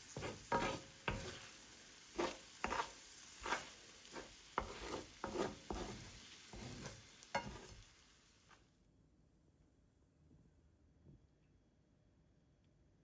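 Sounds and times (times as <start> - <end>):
utensil scraping and knocking: 0.1 - 1.4, 2.2 - 7.8.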